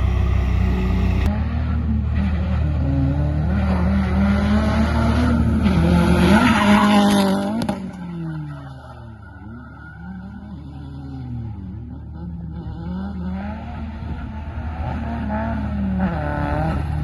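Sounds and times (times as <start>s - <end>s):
car engine revving: 0.0s - 1.4s.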